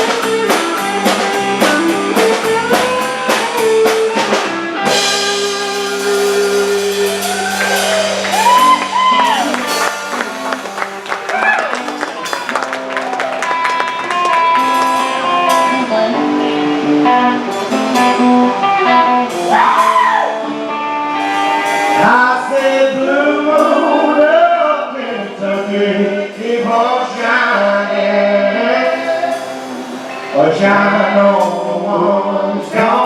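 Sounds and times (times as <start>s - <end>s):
guitar accompaniment: 0.0s - 33.0s
person singing: 21.3s - 33.0s.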